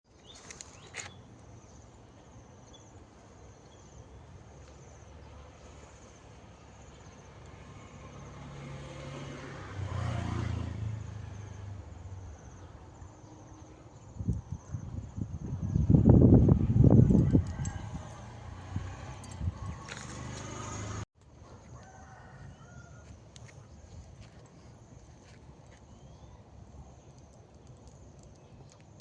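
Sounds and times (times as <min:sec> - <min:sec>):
passing vehicle engine hum: 0:04.6 - 0:26.9.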